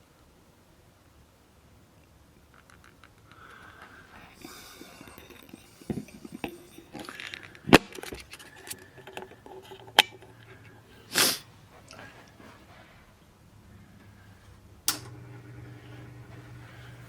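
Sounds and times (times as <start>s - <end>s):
faint low hum: 0.0s - 17.0s
short breathy hiss: 3.3s - 5.9s, 11.0s - 11.5s.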